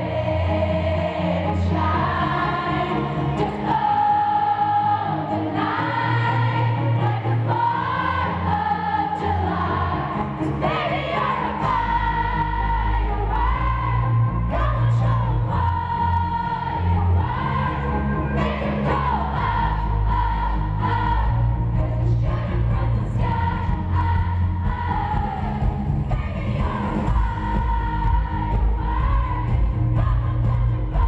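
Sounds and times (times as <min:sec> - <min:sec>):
heavy bass line: 0:09.4 - 0:31.0.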